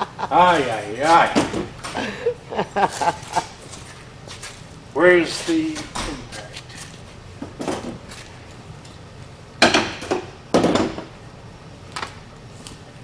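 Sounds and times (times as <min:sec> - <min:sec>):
metal tools clanking: 0:00.0 - 0:08.4.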